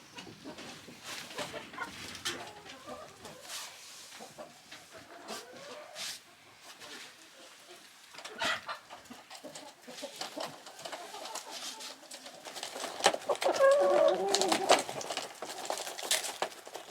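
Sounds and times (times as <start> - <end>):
chickens clucking: 0.0 - 16.9
small clicks and rustles: 9.3 - 16.9.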